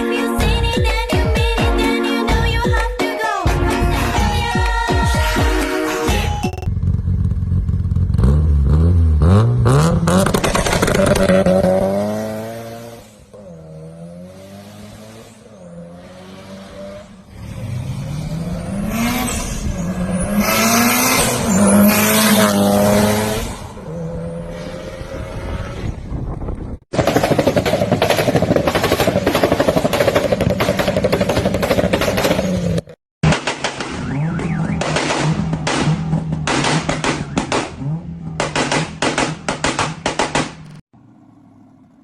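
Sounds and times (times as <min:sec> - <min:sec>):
car engine revving: 0:06.7 - 0:26.0, 0:33.9 - 0:42.0.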